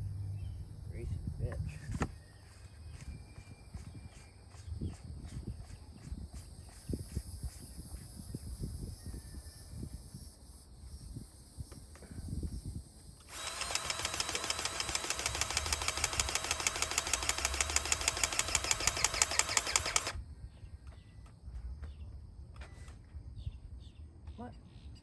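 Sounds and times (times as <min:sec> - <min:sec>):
impact wrench hammering: 0:13.3 - 0:20.2.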